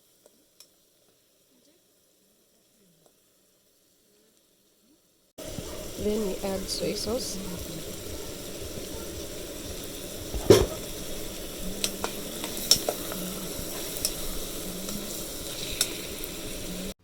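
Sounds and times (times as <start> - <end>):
chicken sizzling in a pot: 0.0 - 17.0
utensil knocking against pot: 10.4 - 10.9.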